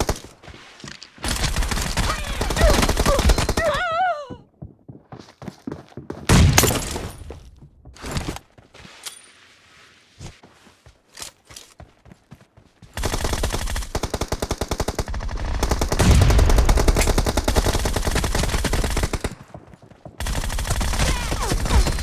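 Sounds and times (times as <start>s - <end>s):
video game automatic gunfire: 13.0s - 19.6s, 20.2s - 22.0s.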